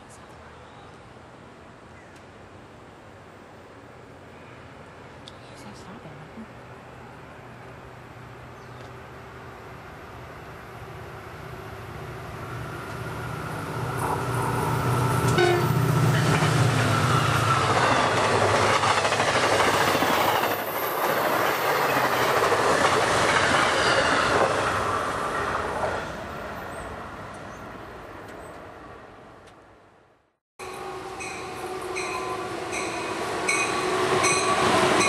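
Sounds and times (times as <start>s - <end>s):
diesel locomotive engine hum: 0.0s - 29.9s, 30.6s - 35.0s
train wheels on rails: 12.4s - 27.6s, 30.6s - 35.0s.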